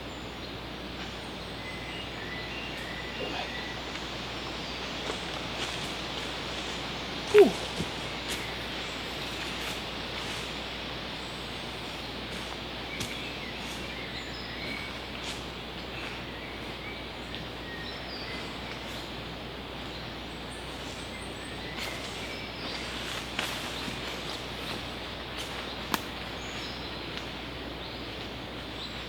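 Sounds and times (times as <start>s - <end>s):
outdoor background hiss: 0.0s - 29.0s
faint bird chirps: 7.3s - 7.7s.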